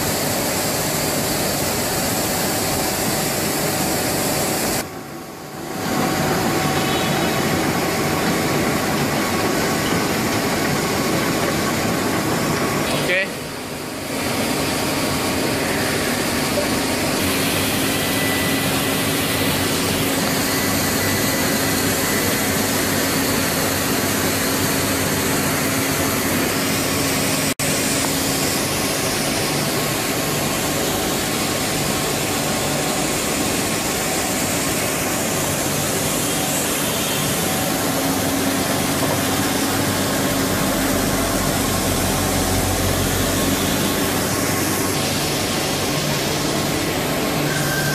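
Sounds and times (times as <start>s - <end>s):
lathe machine hum: 0.0s - 47.9s
steady machine tone: 0.0s - 47.9s.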